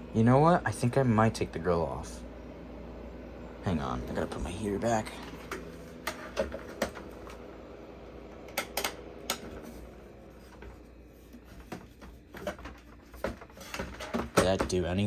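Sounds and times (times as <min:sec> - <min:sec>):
steady low hum: 0:00.0 - 0:15.0
clicks and knocks handling equipment: 0:10.5 - 0:14.9.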